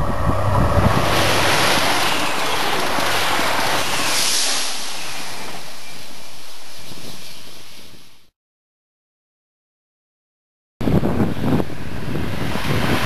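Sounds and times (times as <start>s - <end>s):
train passing at speed: 0.0s - 7.8s
wind buffeting microphone: 0.0s - 8.0s, 10.8s - 13.0s.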